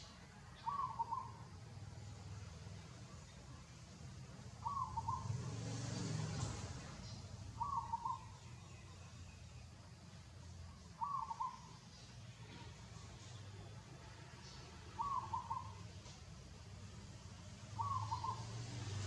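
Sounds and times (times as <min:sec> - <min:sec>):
bird call: 0:00.0 - 0:01.5, 0:04.6 - 0:05.4, 0:07.1 - 0:09.1, 0:10.8 - 0:12.7, 0:14.4 - 0:16.2, 0:17.7 - 0:18.8.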